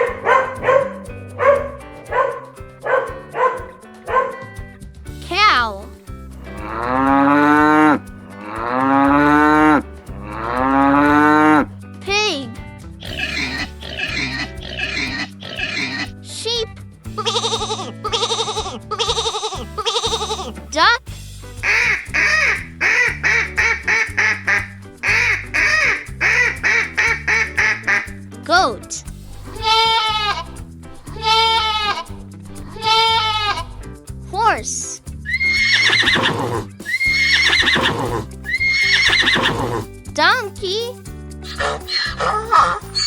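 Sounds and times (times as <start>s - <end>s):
background music: 0.0s - 43.0s
cow mooing: 6.6s - 11.6s
duck quacking: 13.0s - 16.0s, 21.6s - 28.2s.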